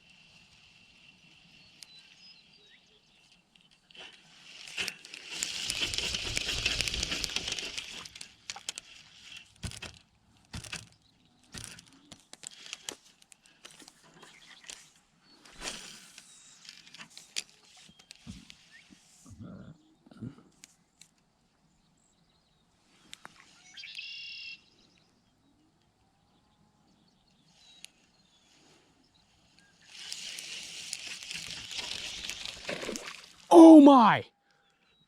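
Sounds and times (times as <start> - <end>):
rustling noise: 3.9 - 10.9, 29.8 - 33.5
fishing reel clicks and rattles: 4.6 - 10.0.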